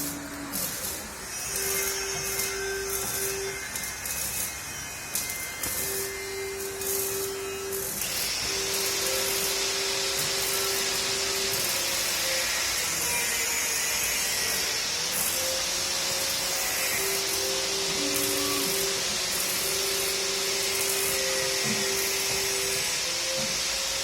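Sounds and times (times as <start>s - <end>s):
stepper motors whining: 0.0s - 24.0s
steady hiss: 5.8s - 24.0s.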